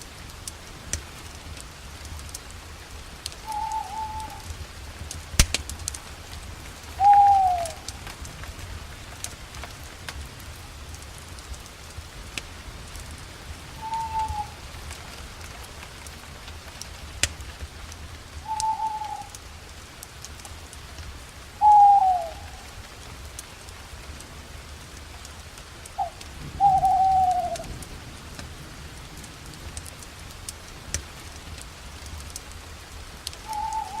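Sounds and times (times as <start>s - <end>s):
campfire crackling: 0.0s - 34.0s
owl hooting: 3.4s - 4.5s, 7.0s - 7.9s, 13.8s - 14.6s, 18.4s - 19.3s, 21.6s - 22.6s, 26.0s - 27.6s, 33.5s - 34.0s.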